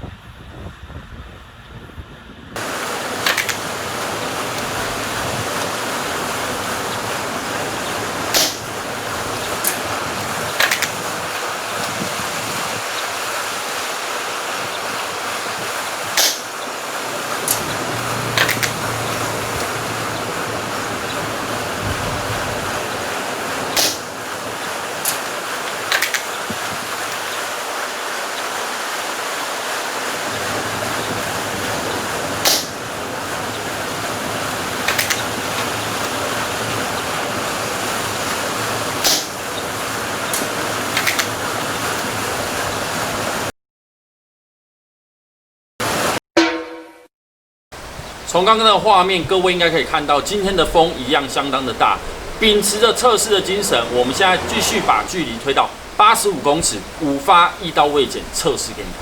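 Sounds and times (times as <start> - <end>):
strong wind on microphone: 0.0 - 27.6, 29.6 - 43.5, 47.8 - 56.0
airsoft rifle firing clicks: 3.2 - 4.7, 8.3 - 8.8, 9.6 - 11.2, 16.2 - 16.6, 18.4 - 18.8, 23.7 - 24.3, 25.0 - 26.5, 32.4 - 32.8, 34.8 - 35.7, 39.0 - 39.5, 40.3 - 41.4.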